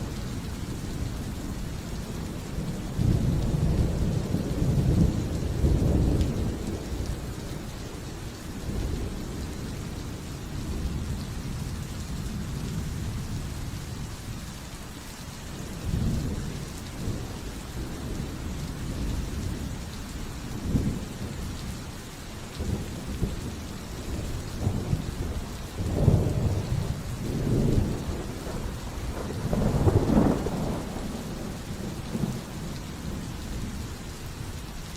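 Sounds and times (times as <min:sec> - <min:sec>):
steady rain falling: 0:00.0 - 0:34.9
rolling thunder: 0:22.6 - 0:33.9.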